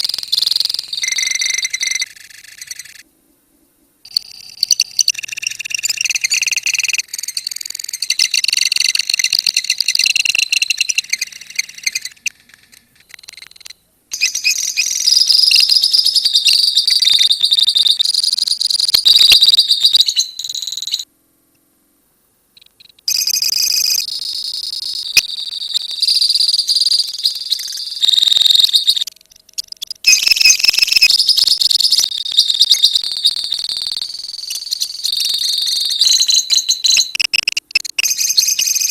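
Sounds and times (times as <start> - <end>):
lovebirds chattering trills: 4.1 - 18.1, 25.1 - 38.9.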